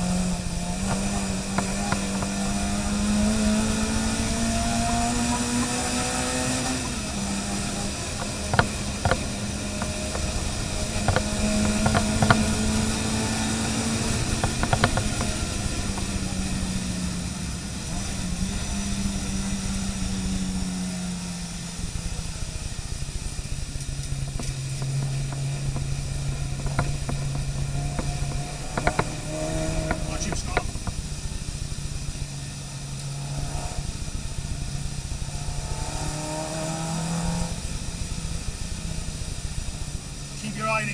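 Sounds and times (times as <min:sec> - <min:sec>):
car engine running: 0:00.0 - 0:40.9
sharp clicks or knocks: 0:00.8 - 0:16.4, 0:23.8 - 0:31.1.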